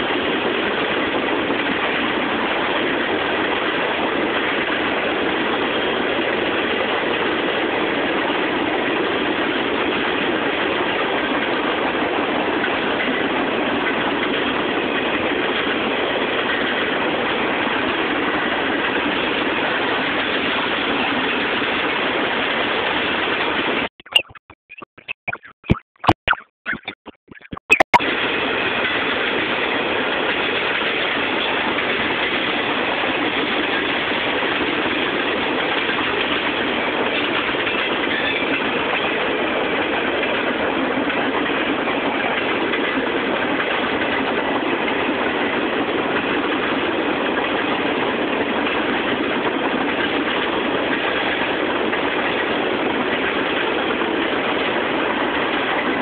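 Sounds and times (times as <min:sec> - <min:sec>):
freight train wheels on track: 0:00.0 - 0:23.9, 0:28.0 - 0:56.0.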